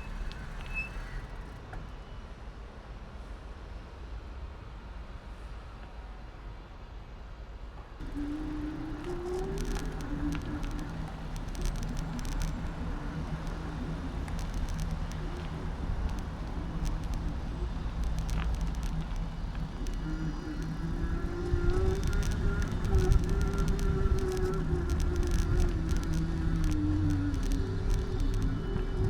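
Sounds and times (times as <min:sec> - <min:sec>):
bicycle clicks and rattles: 0:08.0 - 0:29.0
humming tone: 0:08.0 - 0:29.0
tyre and wind rumble: 0:08.0 - 0:29.0.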